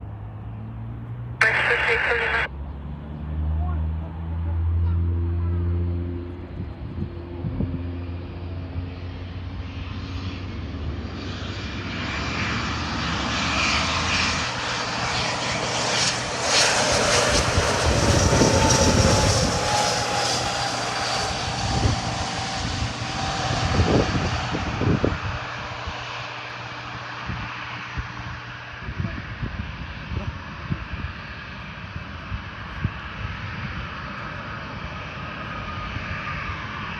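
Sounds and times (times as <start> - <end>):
jet aircraft passing: 1.2 - 3.6, 5.6 - 36.9
high jet whine: 1.4 - 2.5.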